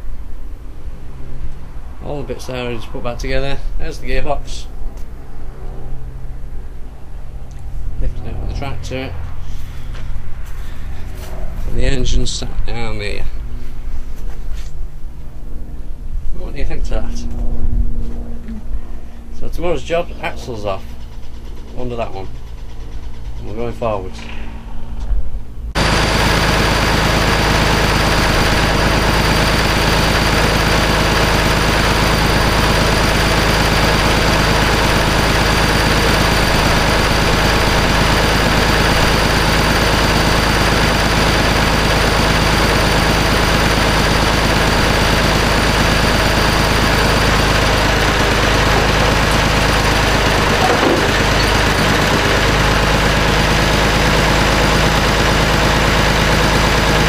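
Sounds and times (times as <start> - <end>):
vehicle engine running steadily: 0.0 - 57.0.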